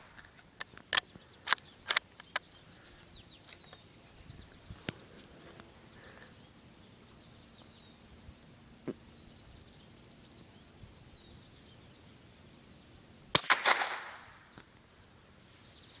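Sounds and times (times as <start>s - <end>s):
rifle shot with echo: 13.3s - 14.4s.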